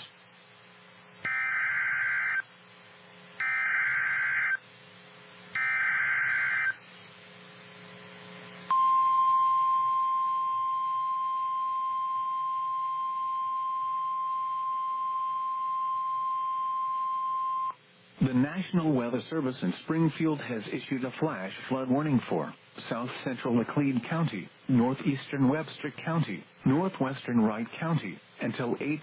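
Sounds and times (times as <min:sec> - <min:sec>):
warning alarm tone: 0:01.3 - 0:02.4, 0:03.4 - 0:04.6, 0:05.6 - 0:06.8.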